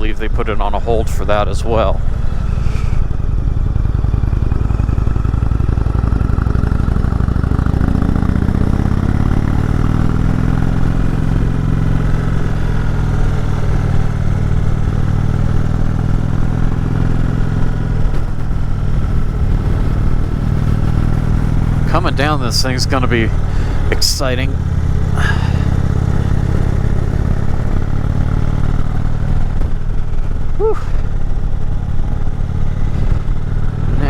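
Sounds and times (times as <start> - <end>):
motorcycle engine running: 0.0 - 34.0
wind rushing on microphone: 17.5 - 34.0.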